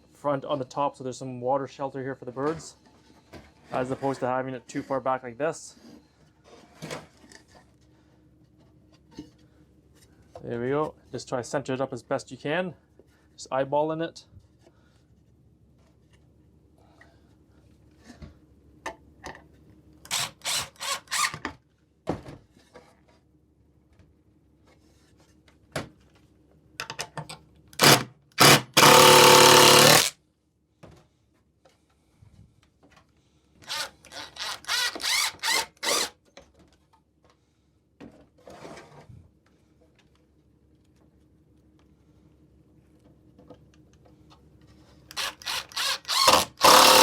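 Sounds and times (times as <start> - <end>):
power drill driving screws: 20.1 - 21.4, 27.8 - 30.1, 33.7 - 36.1, 45.1 - 47.0.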